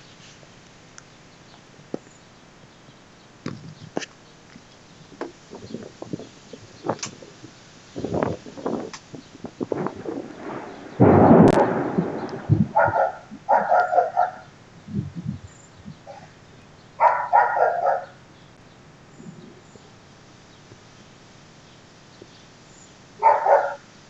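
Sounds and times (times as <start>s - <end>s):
loud sudden crack: 9.7s - 13.0s
dog barking rapidly: 12.7s - 14.5s, 17.0s - 18.2s, 23.2s - 23.9s.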